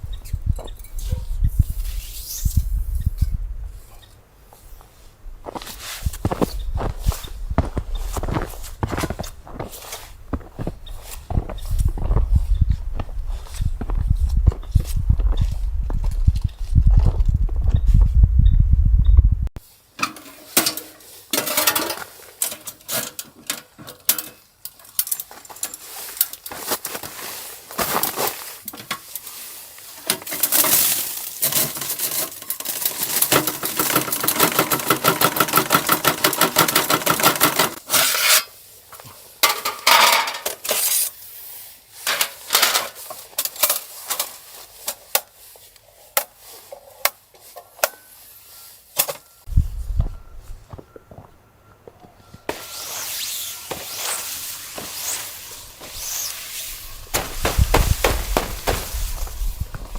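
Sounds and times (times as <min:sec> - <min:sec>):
metal cookware clinking and scraping: 0:20.0 - 0:24.4, 0:39.4 - 0:41.1
quick even strokes: 0:52.5 - 0:59.2.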